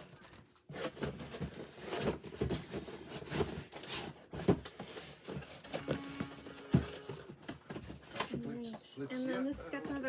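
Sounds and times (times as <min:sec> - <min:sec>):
cardboard boxes handled knocks: 0:04.3 - 0:08.4.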